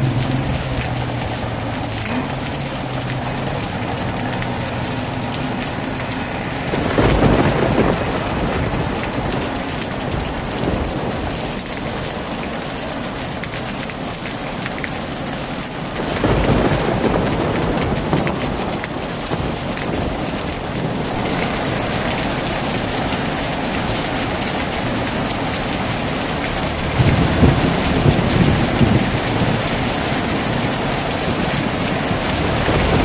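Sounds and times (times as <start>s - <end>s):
thunder rumbling: 0.0s - 12.2s, 15.8s - 33.0s
heavy rain falling: 0.0s - 33.0s.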